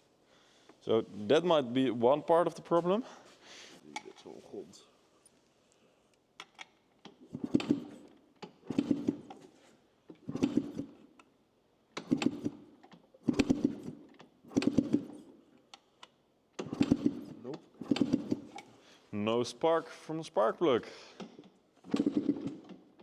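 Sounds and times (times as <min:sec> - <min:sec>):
dirt bike engine cranking: 0:07.2 - 0:09.4, 0:10.2 - 0:11.2, 0:12.0 - 0:15.3, 0:16.6 - 0:18.7, 0:21.8 - 0:23.0.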